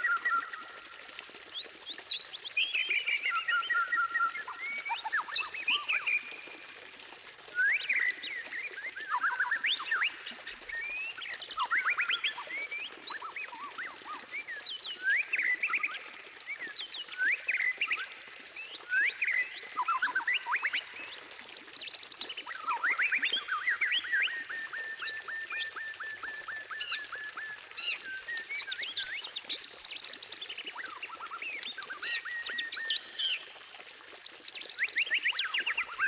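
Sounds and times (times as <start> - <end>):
songbird singing: 7.5 - 33.4.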